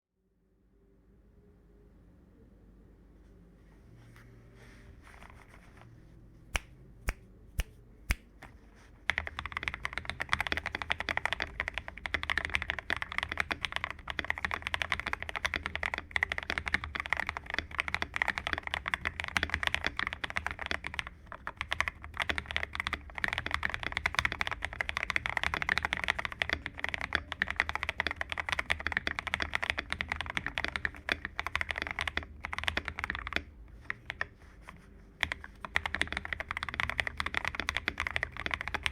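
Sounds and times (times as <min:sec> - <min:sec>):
fast keyboard typing: 0:08.4 - 0:38.9
mechanical keyboard key presses: 0:09.1 - 0:34.3, 0:35.2 - 0:38.9.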